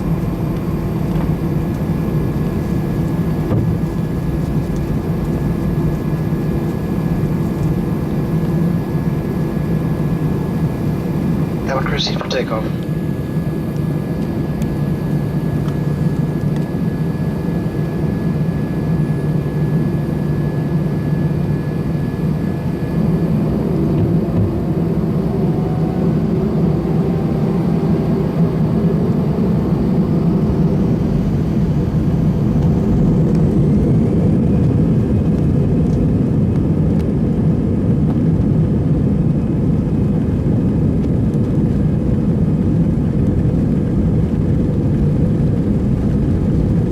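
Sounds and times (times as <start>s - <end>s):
jet engine cabin rumble: 0.0s - 46.9s.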